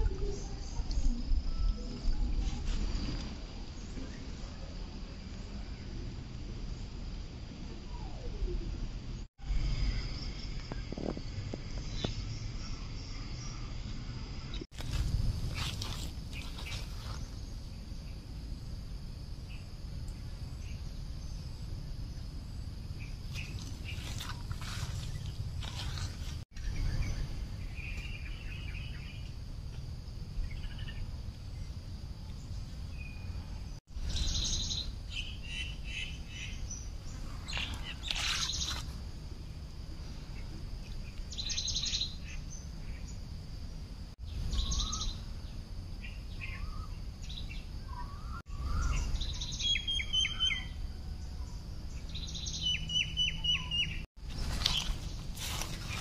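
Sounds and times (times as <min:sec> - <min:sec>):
low steady rumble: 0:00.0 - 0:49.6
birds chirping and whistling: 0:34.1 - 0:38.9, 0:44.3 - 0:45.2, 0:46.0 - 0:50.8, 0:51.9 - 0:56.0.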